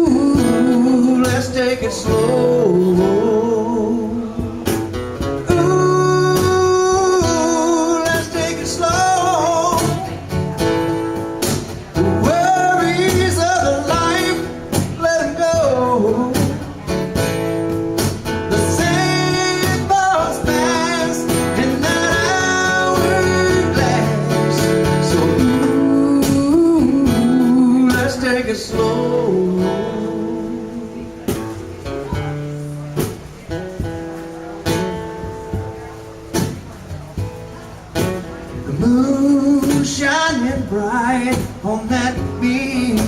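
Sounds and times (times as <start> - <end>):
person singing: 0.0 - 4.8, 5.5 - 10.2, 18.5 - 31.1
acoustic guitar strumming: 0.0 - 43.0
cajon beat: 0.0 - 43.0.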